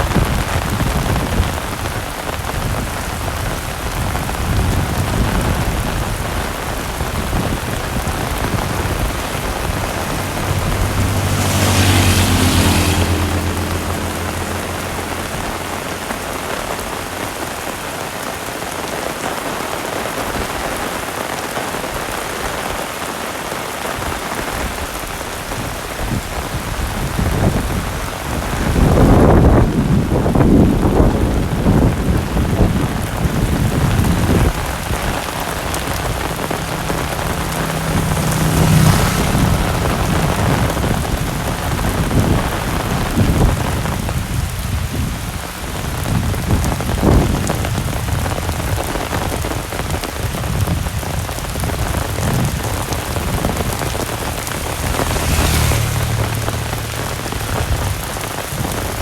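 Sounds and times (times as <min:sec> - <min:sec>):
low thunder rumbling: 0:00.0 - 0:17.8, 0:26.1 - 0:49.6
heavy rain falling: 0:00.0 - 0:59.0.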